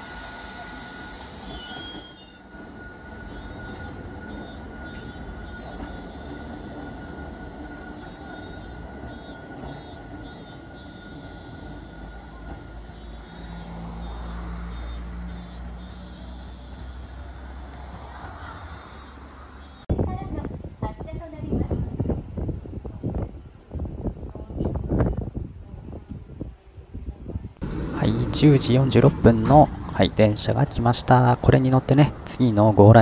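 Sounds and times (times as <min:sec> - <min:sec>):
high-pitched squeal: 0:00.0 - 0:19.9
electric train rumbling: 0:00.0 - 0:33.0.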